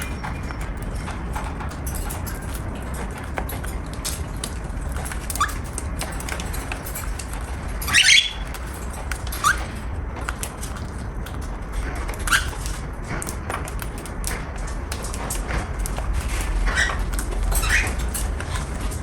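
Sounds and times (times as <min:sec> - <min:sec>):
cockatiel chirping: 0:07.9 - 0:08.4.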